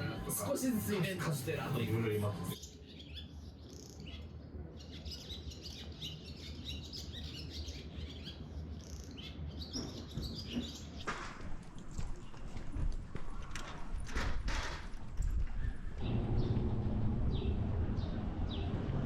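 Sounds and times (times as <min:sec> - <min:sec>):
small birds chirping: 0:00.1 - 0:11.1, 0:15.6 - 0:19.0
steady low hum: 0:15.9 - 0:19.0.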